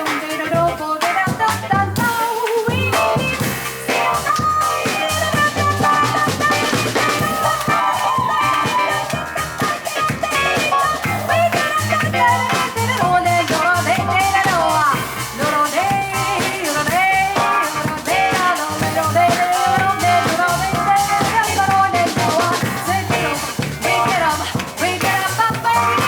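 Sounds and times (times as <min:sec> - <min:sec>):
jazz combo playing: 0:00.0 - 0:26.0
drum kit hits: 0:01.3 - 0:26.0
piano melody: 0:02.9 - 0:15.2
double bass notes: 0:10.2 - 0:17.4.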